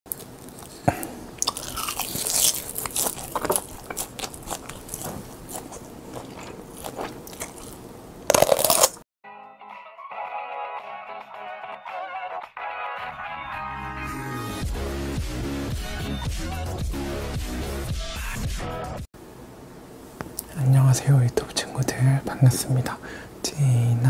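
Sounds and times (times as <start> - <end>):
crunching and chewing crisp food: 0.1 - 9.0
music: 9.2 - 19.1.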